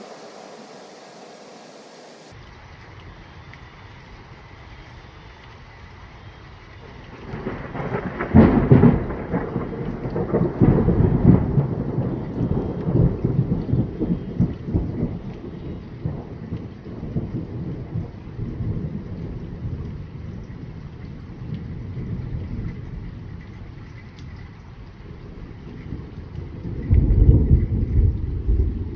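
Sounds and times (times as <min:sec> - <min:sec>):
thunder crack and rumble: 0:06.8 - 0:28.9.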